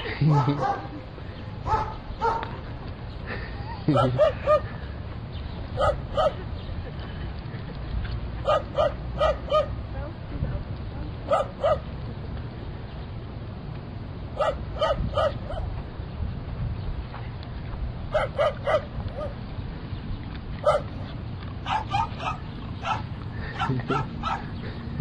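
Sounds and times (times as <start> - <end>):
dog barking: 0.2 - 1.0, 1.6 - 2.5, 3.9 - 4.7, 5.8 - 6.4, 8.4 - 9.8, 11.3 - 11.8, 14.4 - 15.7, 18.1 - 19.4, 20.6 - 21.0, 21.6 - 24.5.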